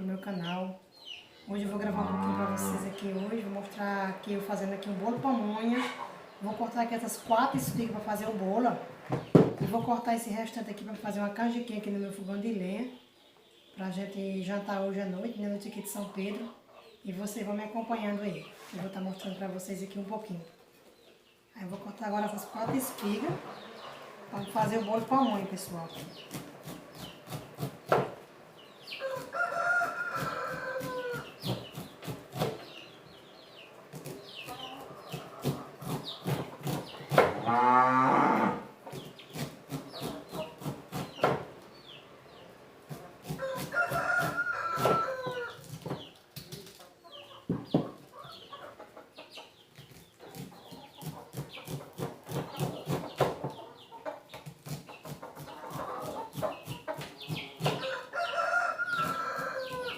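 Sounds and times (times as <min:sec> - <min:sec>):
roosters crowing: 0:01.5 - 0:06.6, 0:29.0 - 0:31.5, 0:37.1 - 0:38.8, 0:43.2 - 0:45.7, 0:57.6 - 0:59.9
low animal call: 0:01.7 - 0:03.2.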